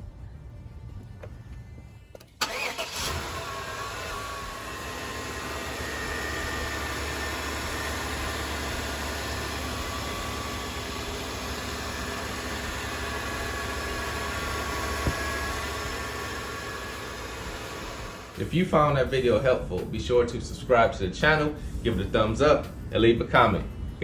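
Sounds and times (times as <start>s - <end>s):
engine idling: 0.0s - 18.5s.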